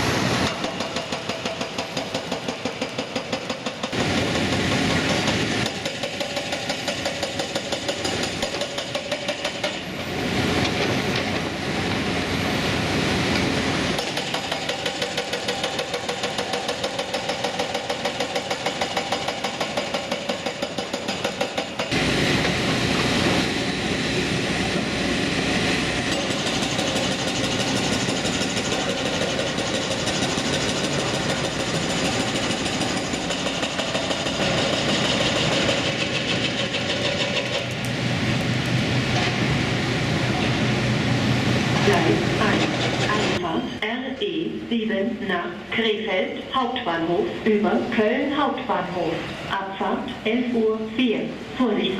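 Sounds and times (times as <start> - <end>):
excavator diesel engine running: 21.9 - 43.4.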